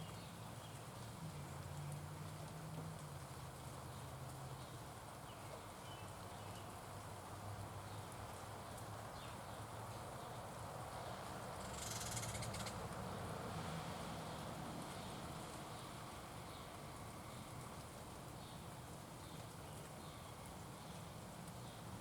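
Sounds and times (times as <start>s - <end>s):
faint bird chirps: 11.6s - 12.8s.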